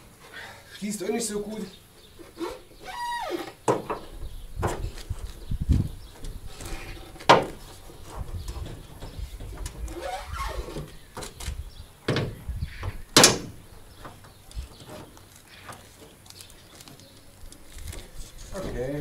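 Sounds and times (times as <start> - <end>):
handling noise: 2.0 - 19.0
car bonnet banging shut: 12.1 - 13.6.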